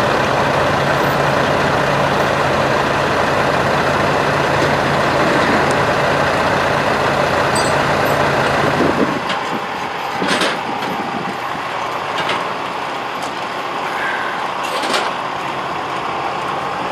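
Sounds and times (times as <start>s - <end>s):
steam engine hissing: 13.7s - 14.7s
sharp steam puffs: 13.8s - 14.6s.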